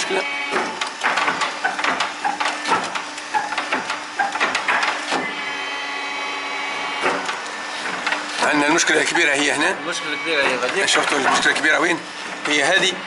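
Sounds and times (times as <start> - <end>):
machine whine: 0.0 - 13.0.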